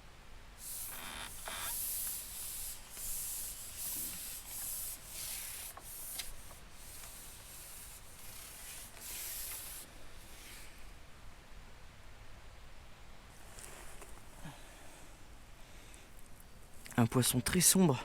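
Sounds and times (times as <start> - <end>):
rustling rubbing hiss: 0.6 - 11.0, 13.3 - 14.5.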